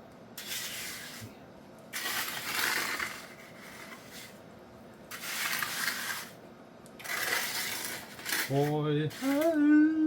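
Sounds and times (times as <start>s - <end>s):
trowel scraping wet concrete: 0.4s - 1.3s, 2.0s - 4.4s, 5.1s - 6.4s, 7.0s - 9.6s.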